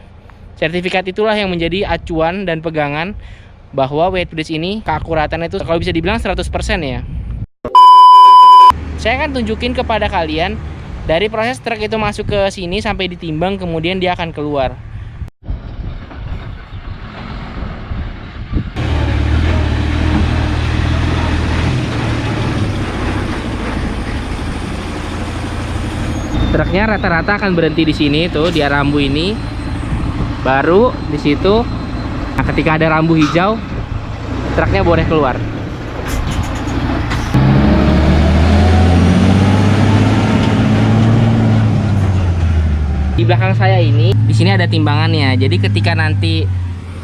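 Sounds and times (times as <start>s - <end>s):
truck diesel engine drone: 18.8s - 47.0s.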